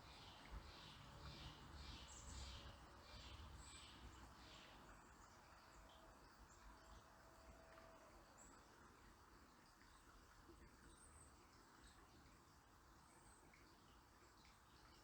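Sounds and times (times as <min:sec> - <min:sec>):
faint outdoor background hiss: 0:00.0 - 0:15.0.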